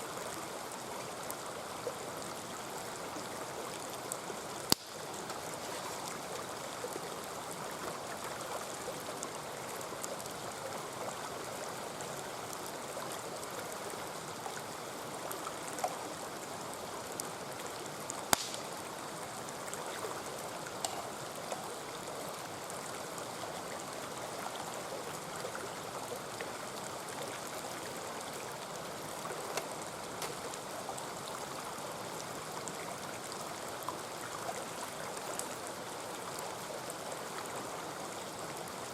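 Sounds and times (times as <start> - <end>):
stream babbling: 0.0 - 38.9
campfire popping and crackling: 4.0 - 7.1, 17.9 - 22.0, 29.3 - 30.7.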